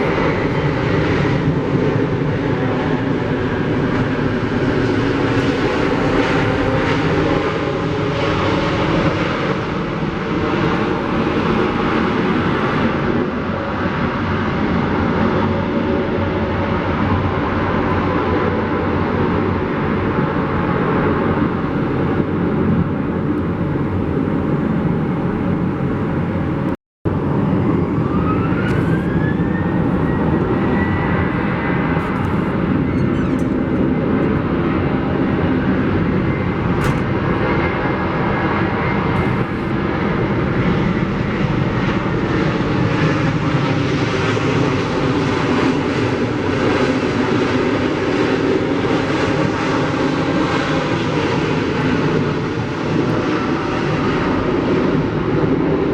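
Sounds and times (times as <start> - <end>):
jet engines running: 0.0 - 55.9
rising engine whine: 18.5 - 46.6.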